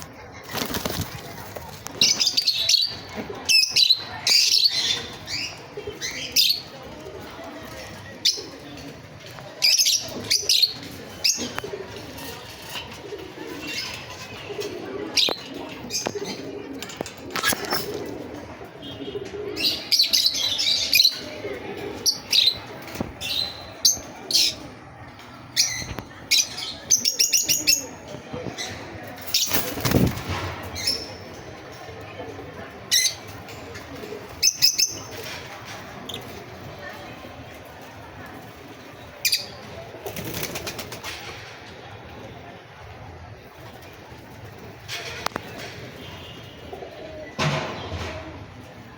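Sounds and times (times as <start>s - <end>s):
pigeons cooing: 1.8s - 30.1s.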